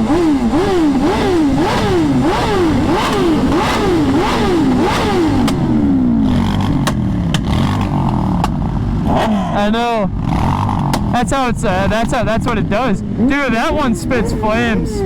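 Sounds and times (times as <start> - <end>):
motorcycle engine revving: 0.0 - 15.0
man talking: 9.5 - 10.2, 11.1 - 15.0.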